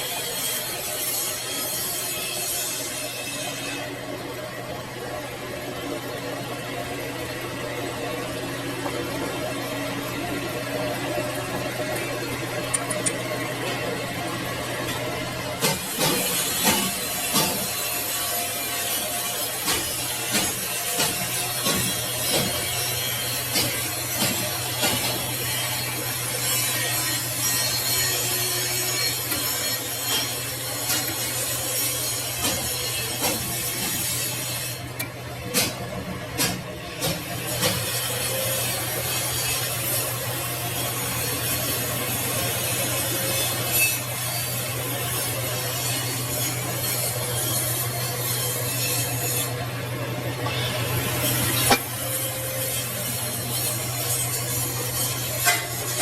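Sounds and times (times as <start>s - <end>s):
machine cutting steel: 0.0s - 4.2s, 9.1s - 56.0s
metal lathe running: 0.0s - 56.0s
sharp metal scrapes: 50.4s - 56.0s.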